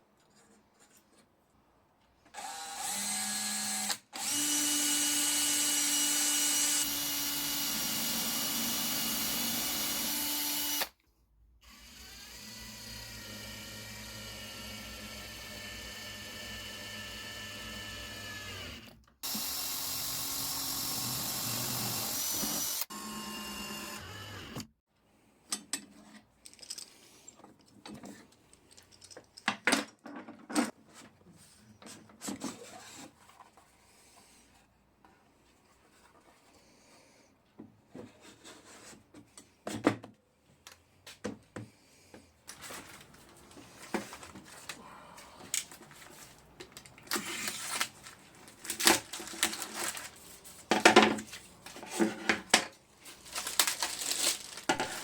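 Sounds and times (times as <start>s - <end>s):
power tool whirring: 2.3s - 11.0s, 11.6s - 24.7s.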